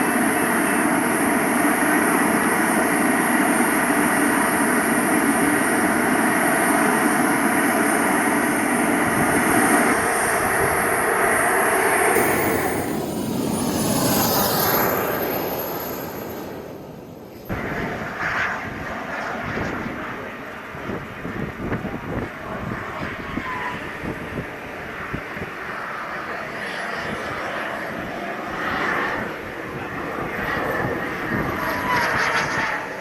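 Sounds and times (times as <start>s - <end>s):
jet turbine rushing and whining: 0.0s - 18.8s.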